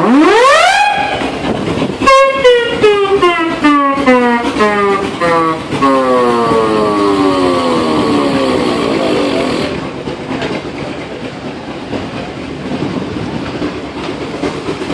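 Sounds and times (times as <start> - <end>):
steam whistle blast: 0.0 - 1.4, 2.0 - 9.3
steam hiss and rumble: 0.8 - 14.9.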